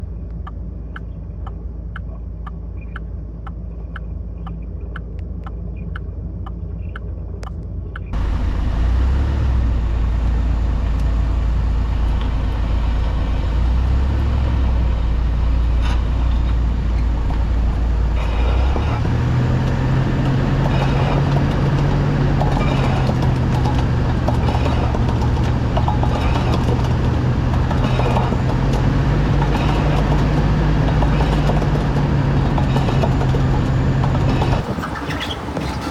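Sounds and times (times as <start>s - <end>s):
car wheel bearing drone: 0.0s - 35.9s
light regular ticking: 0.2s - 8.2s.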